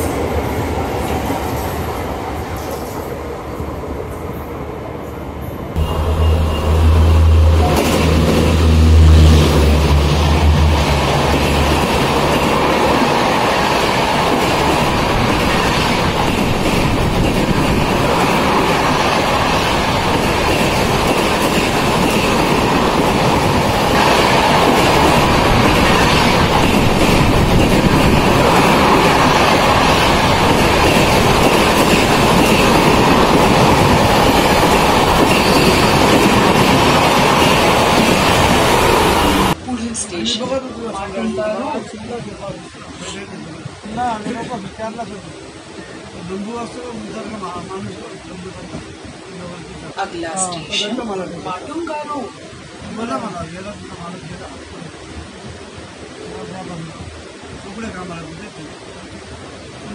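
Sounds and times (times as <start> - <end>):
train wheels rumbling on track: 0.0 - 39.6.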